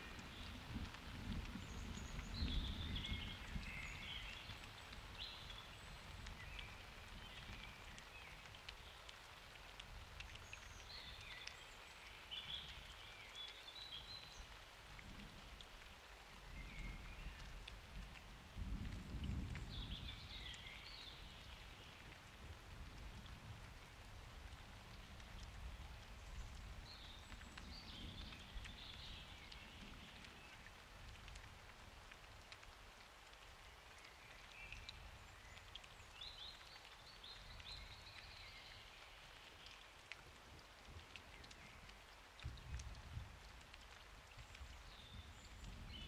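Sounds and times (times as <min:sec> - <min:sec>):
soft steady rain: 0:00.0 - 0:46.0
low rumble of thunder: 0:00.1 - 0:04.6, 0:16.6 - 0:23.8.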